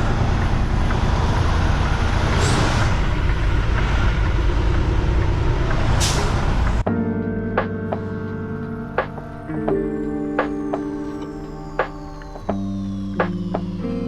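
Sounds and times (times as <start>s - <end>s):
air brake hisses: 2.3s - 3.2s, 6.0s - 6.7s.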